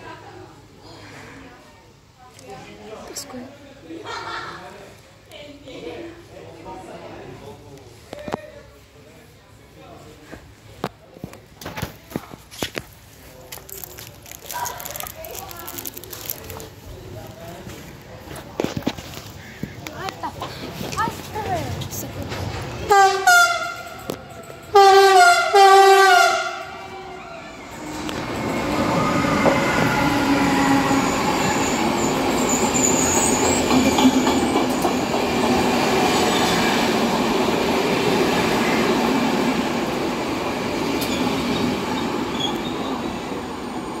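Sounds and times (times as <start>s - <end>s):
train wheels rumbling on rails: 13.5s - 44.0s
locomotive horn blasts: 22.9s - 23.9s, 24.7s - 26.8s.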